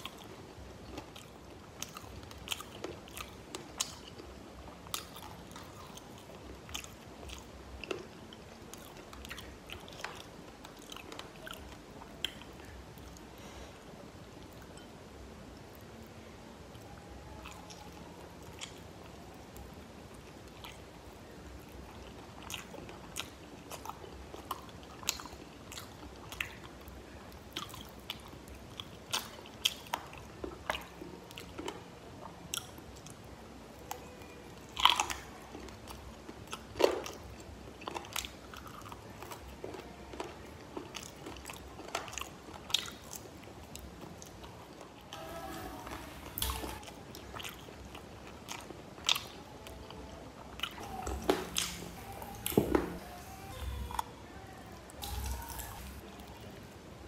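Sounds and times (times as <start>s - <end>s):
crunchy chewing of chicken wings: 55.0s - 56.6s.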